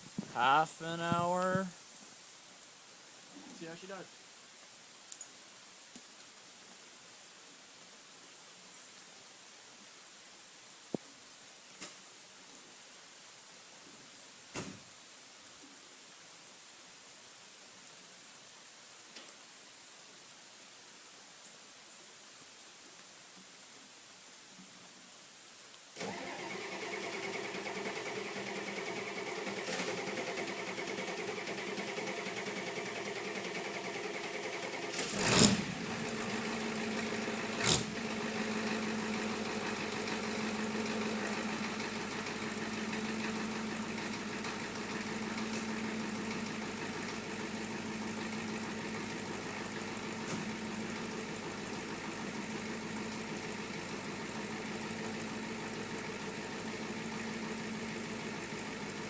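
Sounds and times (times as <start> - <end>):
diesel engine clatter: 26.0 - 59.0.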